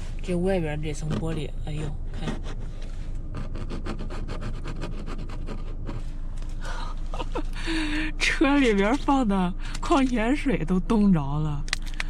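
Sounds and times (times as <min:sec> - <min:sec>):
ice scraped off car window: 0:02.1 - 0:06.2.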